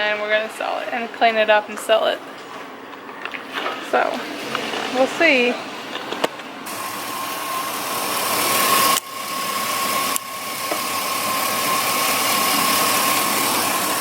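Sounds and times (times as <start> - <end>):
thin steady whine: 0.0 - 14.0
engine idling: 6.6 - 14.0.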